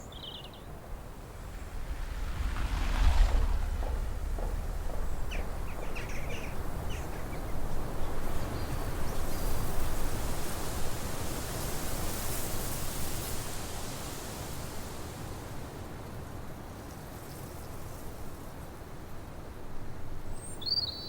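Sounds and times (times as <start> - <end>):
steady rushing noise: 0.8 - 10.0.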